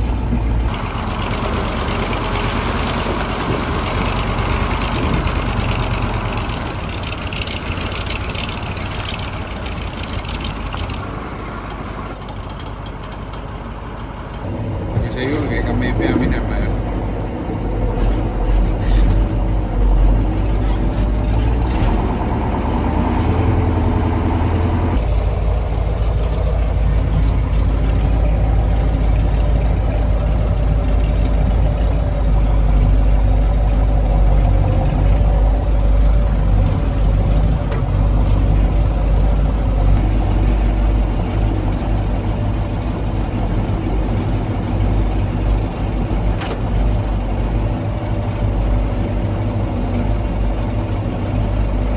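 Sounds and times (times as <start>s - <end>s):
diesel truck engine rumbling: 0.0s - 51.9s.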